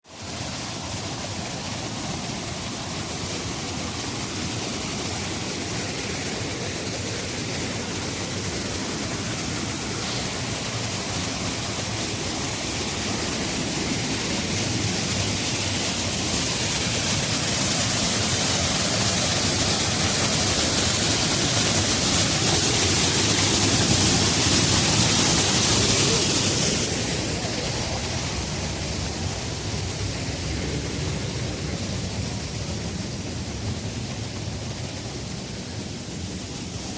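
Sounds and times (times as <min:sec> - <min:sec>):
water rushing down cascades: 0:00.0 - 0:36.9.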